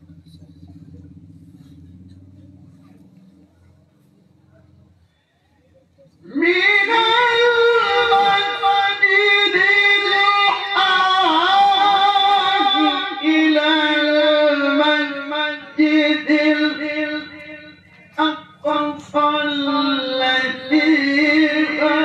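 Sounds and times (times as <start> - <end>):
man reciting melodically: 5.8 - 22.0.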